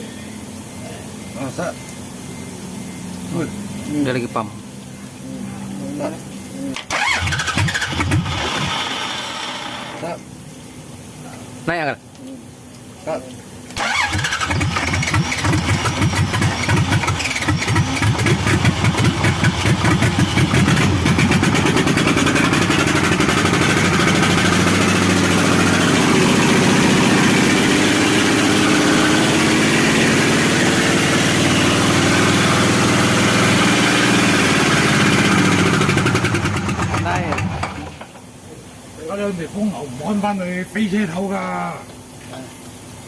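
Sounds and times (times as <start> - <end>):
forklift engine starting and idling: 6.8 - 10.0, 13.8 - 38.1.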